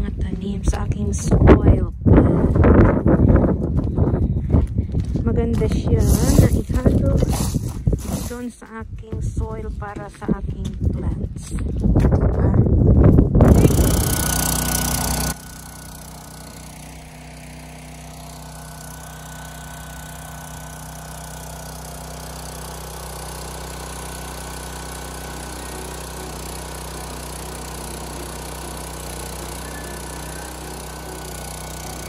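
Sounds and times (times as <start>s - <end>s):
small engine idling: 13.4s - 32.0s.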